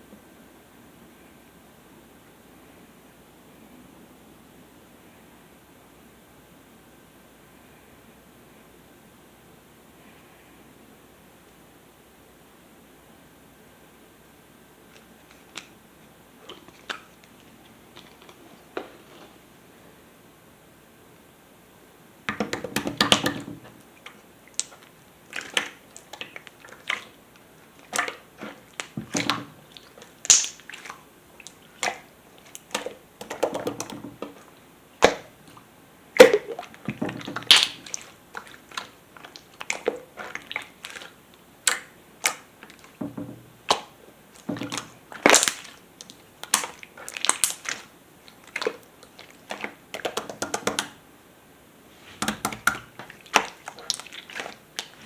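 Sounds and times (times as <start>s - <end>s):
hands squishing slime: 16.4s - 18.8s, 22.3s - 51.0s, 52.0s - 55.0s.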